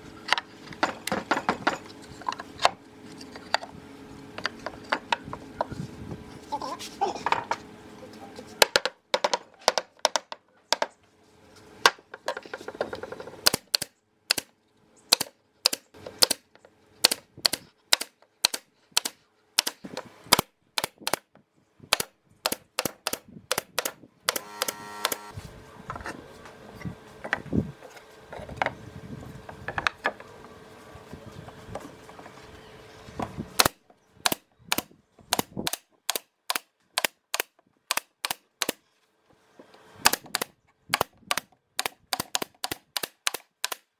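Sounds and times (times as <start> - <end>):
knocks on wooden boards: 8.6 - 10.9.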